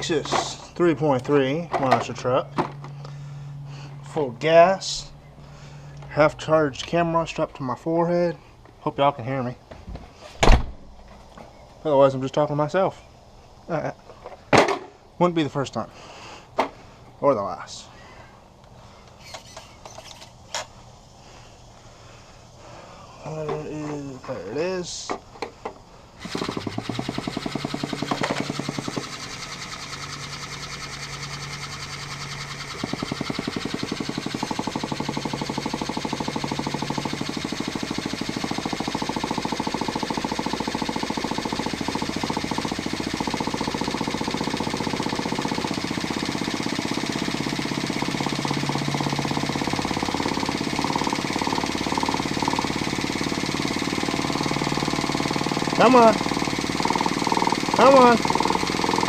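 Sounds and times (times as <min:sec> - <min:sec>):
nitro engine buzzing: 0:26.2 - 0:59.0.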